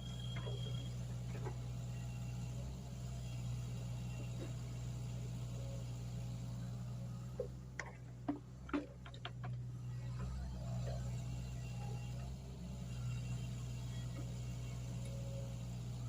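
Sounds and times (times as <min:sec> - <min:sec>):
excavator engine running: 0:00.0 - 0:16.0
sharp knocks and clicks: 0:07.4 - 0:09.6.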